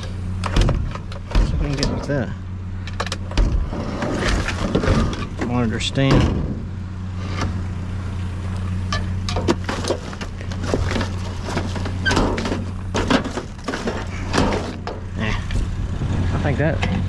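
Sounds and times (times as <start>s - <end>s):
junk clattering in a dumpster: 0.0s - 2.2s, 2.9s - 7.6s, 8.9s - 15.5s
engine idling hum: 0.0s - 17.0s.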